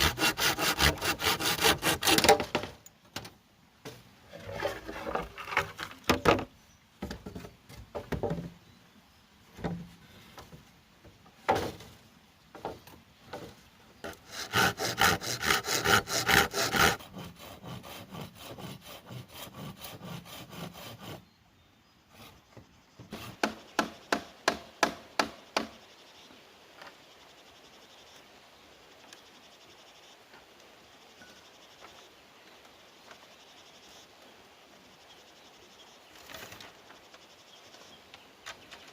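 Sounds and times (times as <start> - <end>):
sharp wooden knocks and chops: 23.0 - 25.8.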